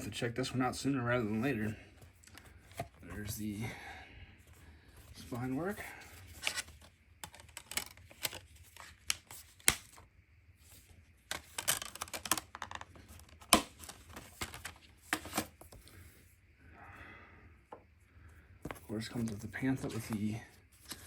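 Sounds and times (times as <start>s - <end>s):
paper and plastic rustling: 5.0s - 10.0s, 10.6s - 16.0s, 18.6s - 21.0s
clicks and taps of packaging: 11.3s - 15.5s.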